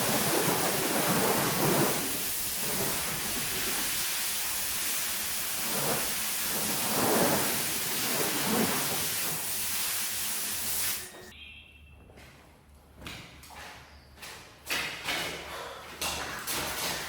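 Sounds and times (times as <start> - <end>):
water spraying onto a rug: 0.0 - 11.1.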